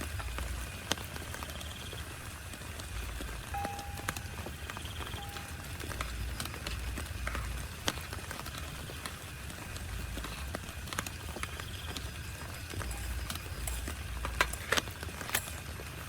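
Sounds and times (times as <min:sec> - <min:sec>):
rain tapping on a tent: 0:00.0 - 0:16.0.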